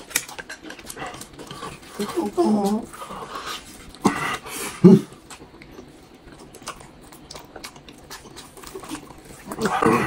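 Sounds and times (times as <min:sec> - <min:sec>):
person chewing meat wetly: 0:05.1 - 0:10.0.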